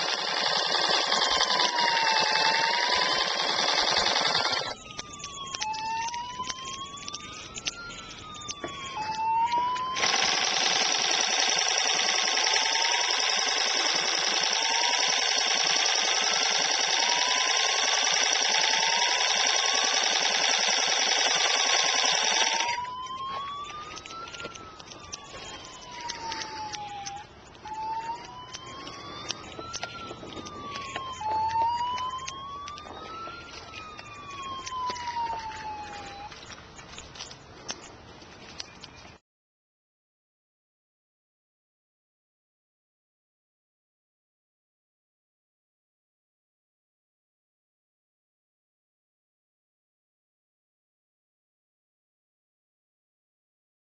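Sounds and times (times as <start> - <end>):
emergency siren wailing: 0.0 - 37.3.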